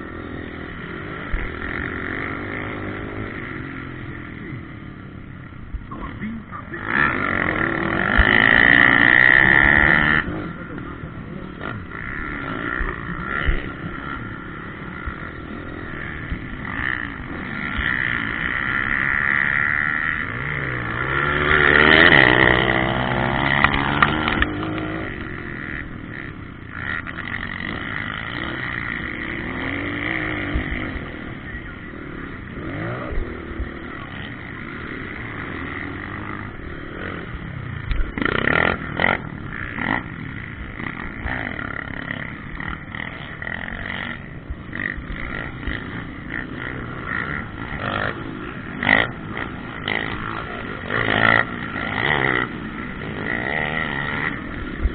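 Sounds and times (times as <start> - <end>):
motocross bikes revving: 0.0 - 54.9.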